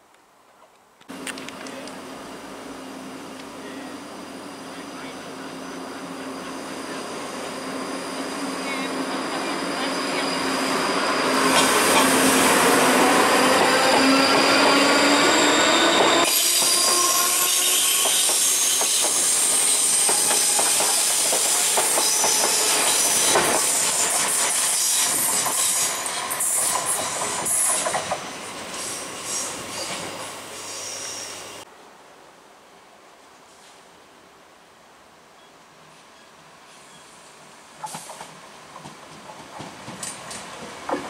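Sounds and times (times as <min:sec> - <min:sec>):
train electric whine: 0:01.1 - 0:31.6
wheels clicking over rail joints: 0:37.8 - 0:41.0.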